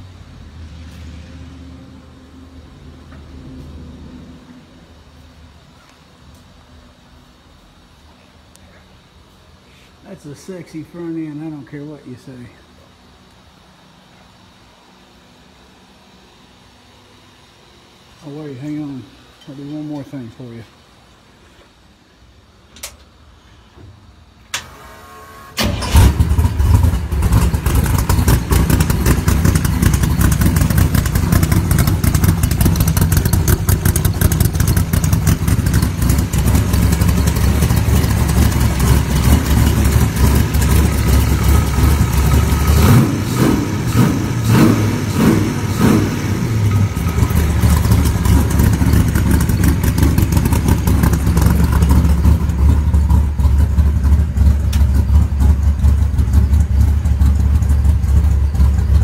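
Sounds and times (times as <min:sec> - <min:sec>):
car engine idling and blipping: 0:25.6 - 0:59.0.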